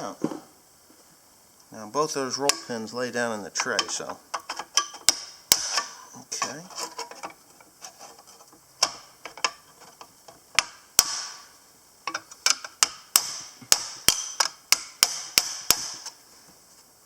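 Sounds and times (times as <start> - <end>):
sharp metallic taps and knocks: 2.4 - 2.9, 3.6 - 7.4, 8.8 - 16.2.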